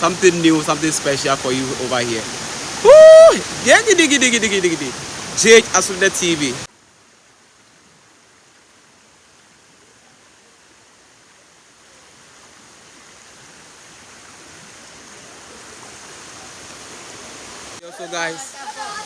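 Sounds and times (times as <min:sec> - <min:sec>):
waterfall rushing: 0:00.0 - 0:06.7, 0:15.3 - 0:19.0.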